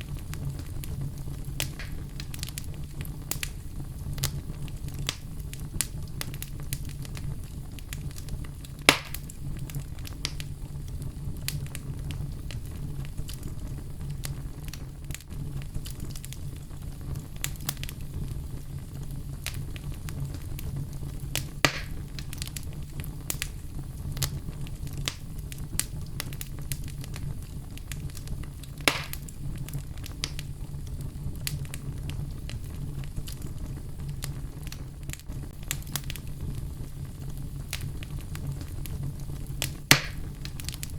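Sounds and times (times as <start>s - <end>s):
fire crackles and pops: 0.0s - 40.9s
wood fire rumbling: 0.0s - 40.9s.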